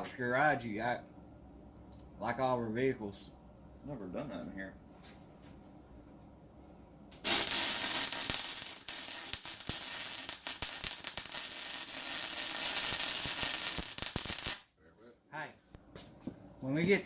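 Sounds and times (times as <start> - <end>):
arc welder crackling sizzle: 7.1 - 14.7.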